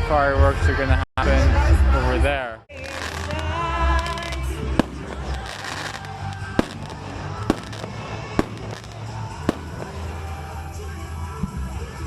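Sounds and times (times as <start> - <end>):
background music: 0.0 - 12.0
fireworks bangs: 2.8 - 11.8.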